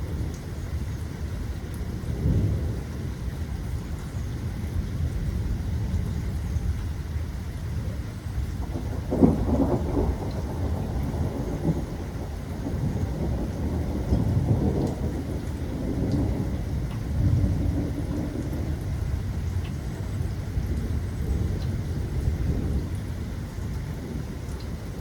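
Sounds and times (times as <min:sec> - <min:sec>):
steady rain: 0:00.0 - 0:25.0
thunder rumbling: 0:07.8 - 0:19.6.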